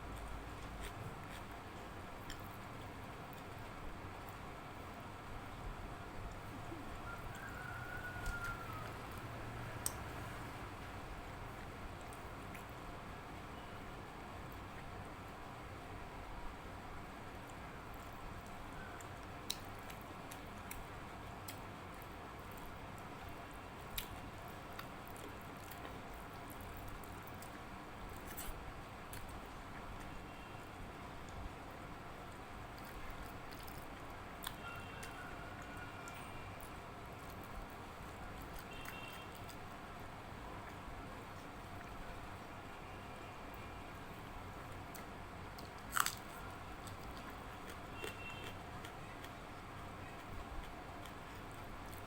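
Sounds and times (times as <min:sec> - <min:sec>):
low steady hum: 0:00.0 - 0:52.0
person chewing food: 0:00.2 - 0:04.4, 0:18.4 - 0:30.1, 0:32.3 - 0:42.0, 0:44.6 - 0:52.0.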